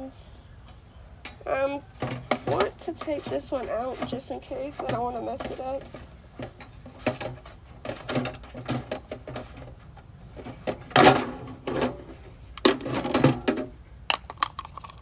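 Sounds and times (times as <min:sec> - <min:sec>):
plastic scraping and knocking: 0:00.7 - 0:15.0
sharp plastic clicks: 0:14.1 - 0:15.0.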